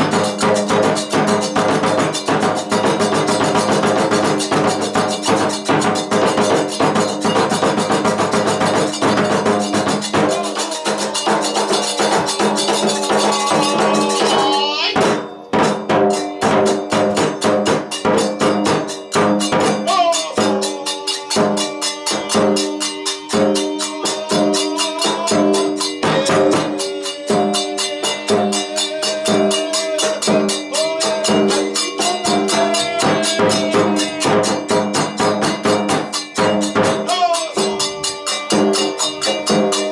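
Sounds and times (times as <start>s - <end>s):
drum strokes: 0.0s - 39.9s
hand cymbals clanging: 0.0s - 39.9s
flute melody: 9.1s - 15.4s.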